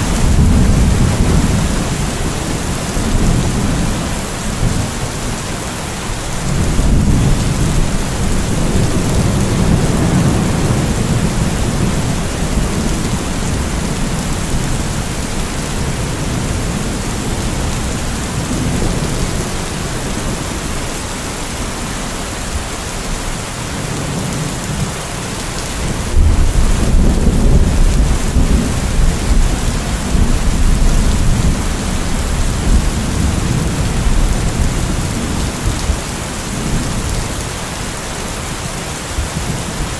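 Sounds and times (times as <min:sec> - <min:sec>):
rolling thunder: 0:00.0 - 0:05.5, 0:06.3 - 0:20.8, 0:25.8 - 0:37.4
heavy rain hissing: 0:00.0 - 0:39.9.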